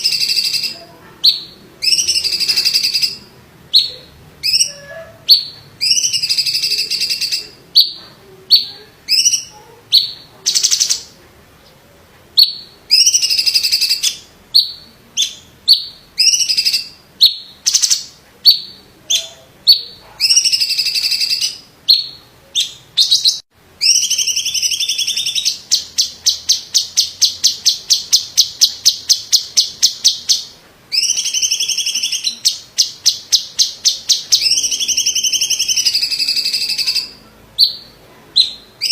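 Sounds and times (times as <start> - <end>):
bird trilling: 0.0 - 11.2, 12.4 - 38.9
bird singing sharp phrases: 0.0 - 11.8, 12.4 - 38.9.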